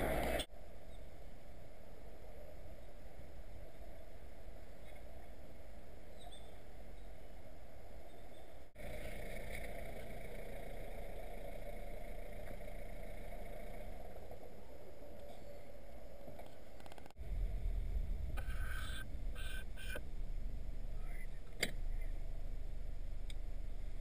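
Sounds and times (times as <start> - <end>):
car engine idling: 8.8 - 15.0
deeper rumble: 8.8 - 24.0.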